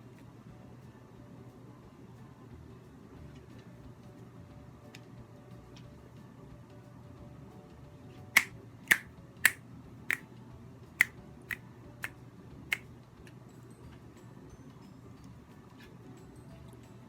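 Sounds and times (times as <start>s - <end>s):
finger snaps: 8.4s - 10.2s, 11.0s - 12.9s.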